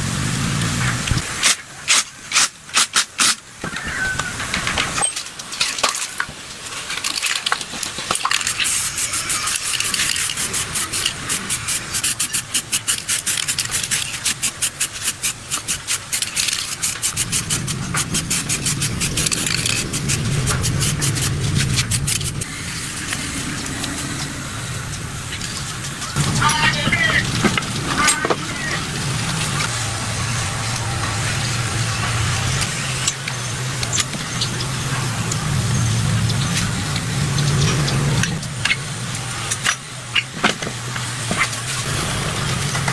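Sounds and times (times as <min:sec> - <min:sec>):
hand tool scraping hard surface: 0:05.0 - 0:24.3.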